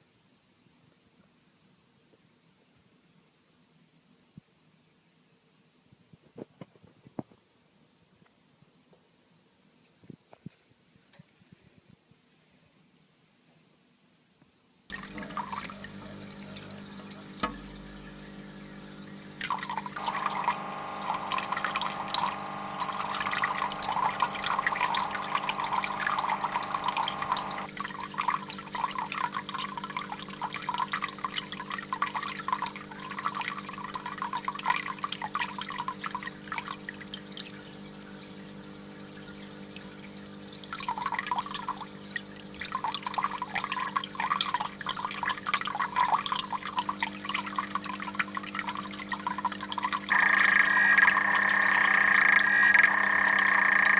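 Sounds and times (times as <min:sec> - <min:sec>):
water splashing and trickling: 0:14.9 - 0:50.1
steady low hum: 0:20.0 - 0:27.7, 0:50.1 - 0:53.9.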